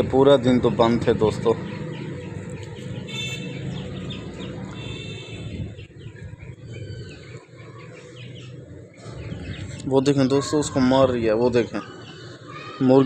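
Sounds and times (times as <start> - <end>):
birds chirping: 0.0 - 13.0
wind on microphone: 3.9 - 7.3, 9.0 - 9.9.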